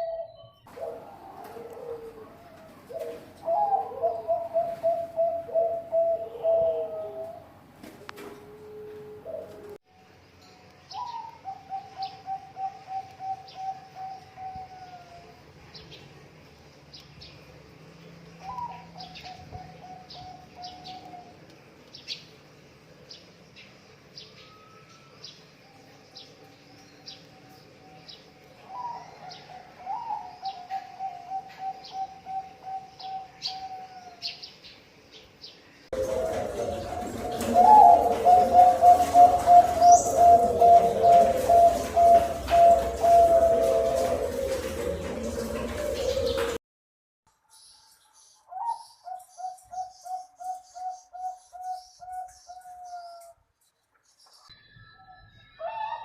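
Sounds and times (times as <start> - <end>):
dove cooing with rattling trill: 0.0 - 9.8, 10.9 - 15.4, 28.6 - 34.2, 36.0 - 46.6.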